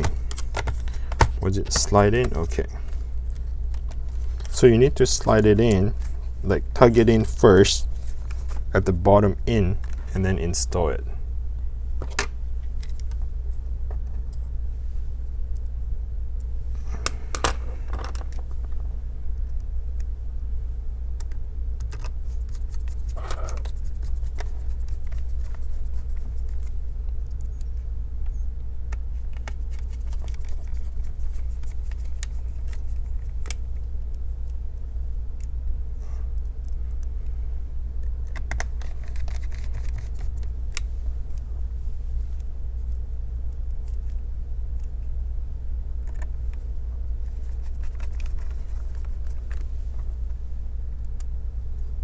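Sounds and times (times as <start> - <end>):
clicks and taps of laptop parts: 0.0 - 4.5, 38.2 - 40.9
steady low hum: 0.0 - 52.0.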